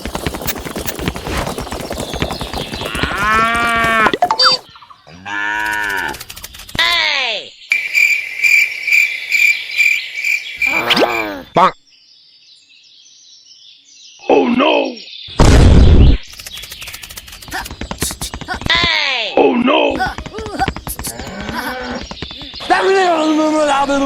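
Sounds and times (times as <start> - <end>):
dense rattling clatter: 0.0 - 4.2
cows mooing: 2.9 - 6.2
rhythmic high chirping: 3.8 - 4.7.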